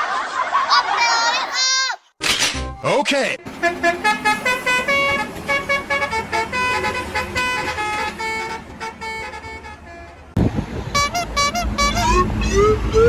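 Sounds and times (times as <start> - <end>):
multi-tone bus horn tune: 3.5 - 13.0
loud low rumble: 6.4 - 13.0.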